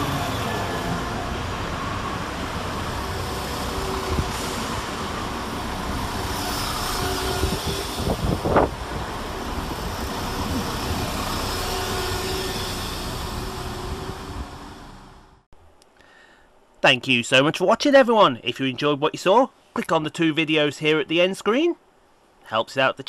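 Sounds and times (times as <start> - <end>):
train clatter and squeal: 0.0 - 15.0
train engine and rail rumble: 0.0 - 15.5.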